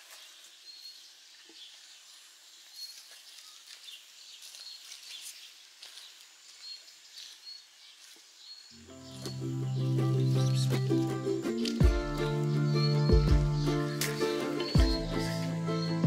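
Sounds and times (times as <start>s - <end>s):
small bird chirps: 6.5s - 16.0s.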